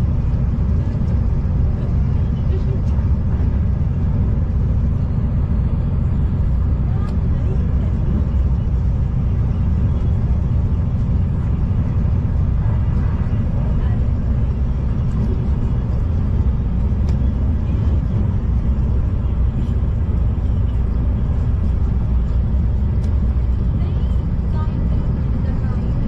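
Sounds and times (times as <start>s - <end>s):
train rumbling from inside carriage: 0.0s - 26.0s.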